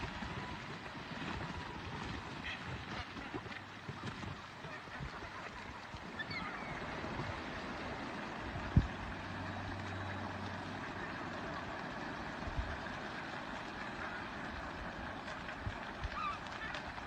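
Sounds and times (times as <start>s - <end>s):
wind and water rushing: 0.0s - 17.0s
low hum: 3.5s - 17.0s.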